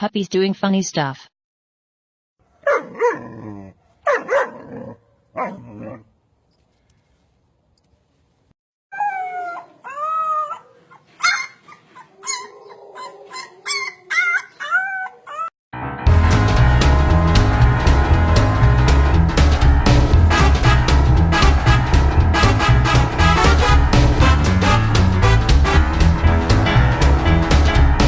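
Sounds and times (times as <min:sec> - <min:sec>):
dog yipping: 0:02.5 - 0:06.0, 0:08.9 - 0:15.5
dog barking and howling: 0:02.5 - 0:06.1, 0:08.9 - 0:15.5.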